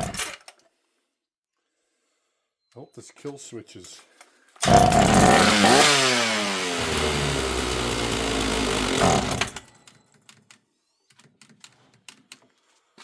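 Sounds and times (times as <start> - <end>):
chainsaw starting and running: 4.6 - 9.7.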